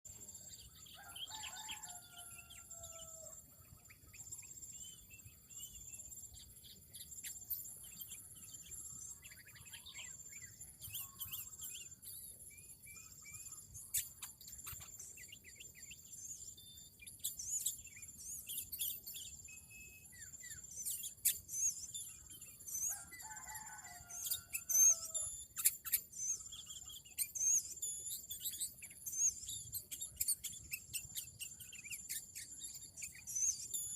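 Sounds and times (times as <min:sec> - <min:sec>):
songbirds chirping: 0:00.1 - 0:33.9
rooster crowing: 0:01.0 - 0:03.4, 0:22.9 - 0:25.2.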